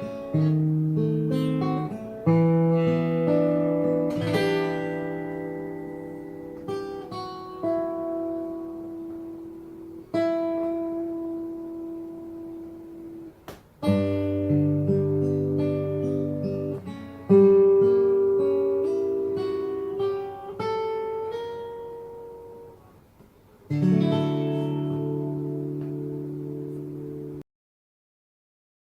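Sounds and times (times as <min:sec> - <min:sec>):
fingerstyle acoustic guitar: 0:00.0 - 0:27.4
percussive tap on guitar: 0:13.4 - 0:13.8, 0:25.7 - 0:26.0.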